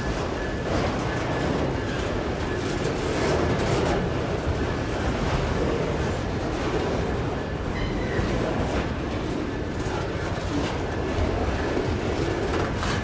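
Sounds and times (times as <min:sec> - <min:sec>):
train rolling past: 0:00.0 - 0:13.0.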